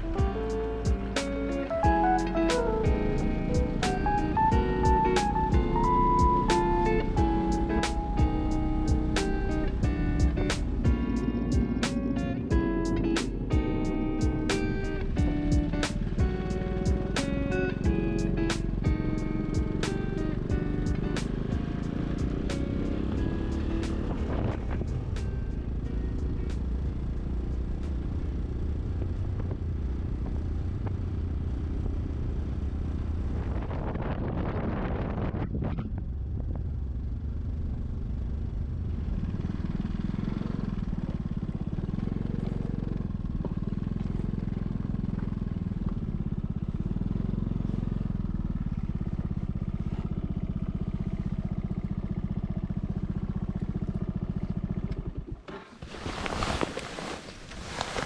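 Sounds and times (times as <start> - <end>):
scooter engine running: 0.0 - 33.7, 36.2 - 56.6
wind noise: 33.2 - 36.8.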